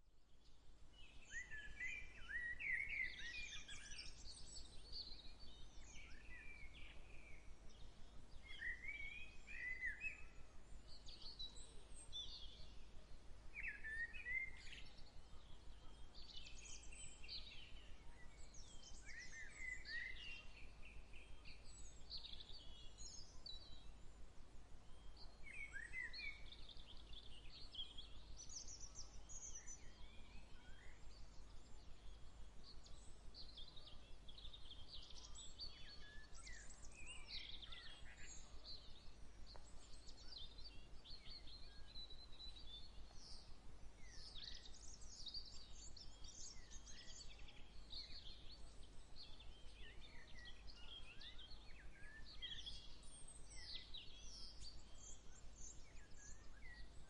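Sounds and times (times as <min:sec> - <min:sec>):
many birds chirping: 0:00.9 - 0:12.8, 0:13.6 - 0:24.1, 0:24.8 - 0:57.0.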